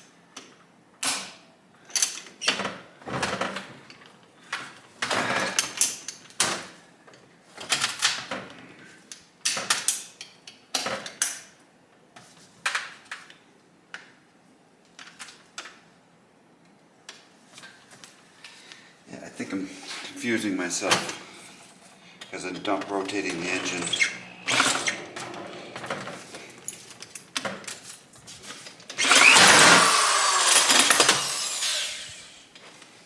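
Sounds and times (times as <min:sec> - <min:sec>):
short scrapes: 0:19.4 - 0:22.2.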